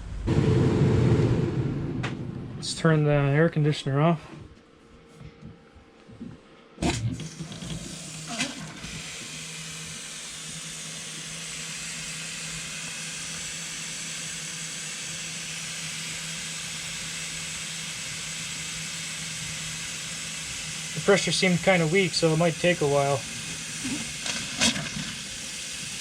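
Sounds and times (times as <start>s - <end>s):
low hum: 0.0s - 6.6s
water running into sink: 7.1s - 9.0s.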